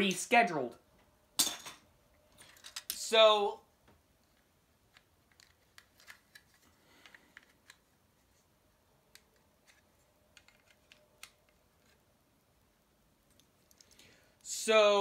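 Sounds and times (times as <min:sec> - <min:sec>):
plastic bricks clicking together: 0:10.3 - 0:11.6.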